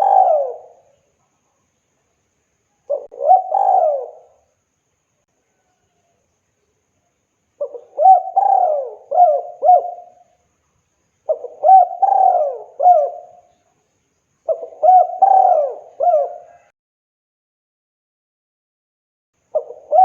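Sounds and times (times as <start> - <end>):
dove cooing: 0.0 - 1.0, 2.9 - 4.4, 7.6 - 10.3, 11.3 - 13.5, 14.5 - 16.7, 19.5 - 20.0.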